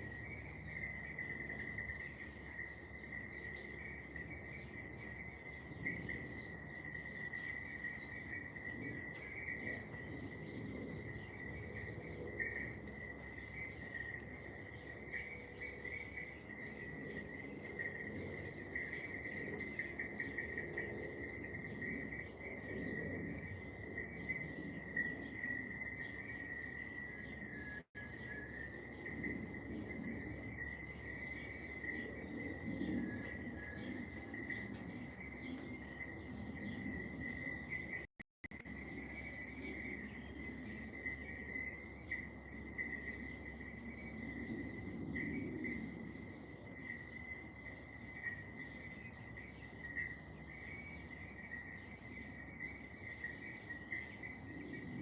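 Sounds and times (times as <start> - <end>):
insect chirring trill: 0.0 - 38.0
faint bird chirps: 0.0 - 55.0.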